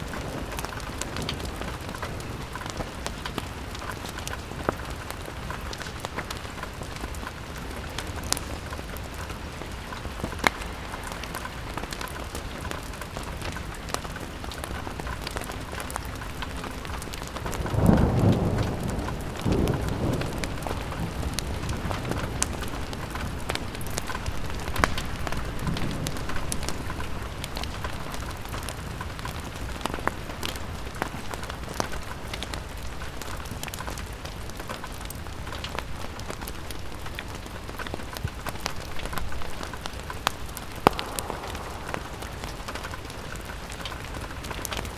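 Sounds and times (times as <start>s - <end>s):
rain on a window: 0.0s - 44.9s
thunder rumbling: 7.5s - 28.6s, 39.9s - 44.9s.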